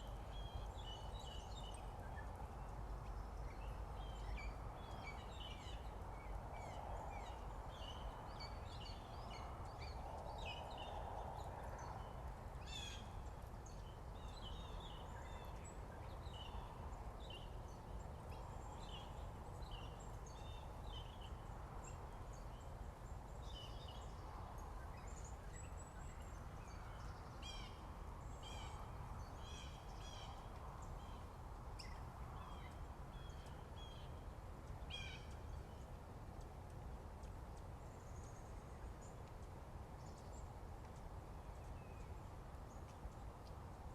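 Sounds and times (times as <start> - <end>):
low background hiss: 0.0 - 43.9
wild birds chirping: 0.0 - 43.9.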